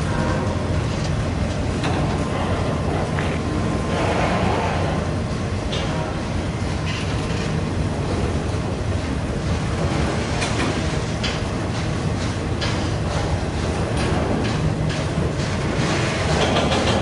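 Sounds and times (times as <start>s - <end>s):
train wheels clicking over rail joints: 9.9s - 17.0s.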